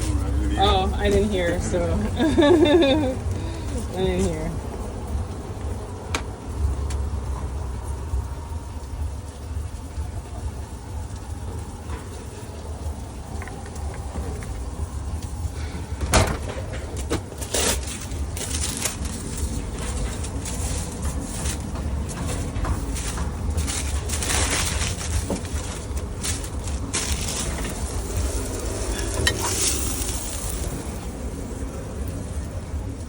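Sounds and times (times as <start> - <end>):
food sizzling on griddle: 0.1 - 16.0, 17.2 - 32.1
metal spatula scraping griddle: 26.9 - 30.7.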